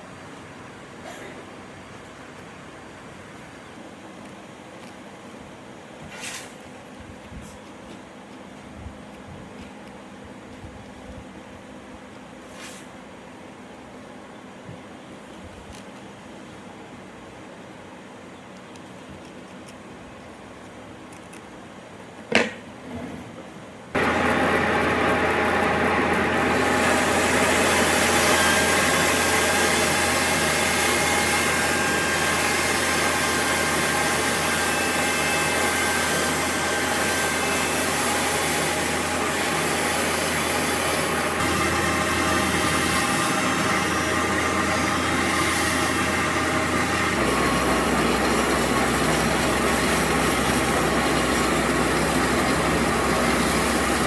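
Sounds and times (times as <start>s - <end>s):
power tool motor whirring: 24.0s - 54.0s.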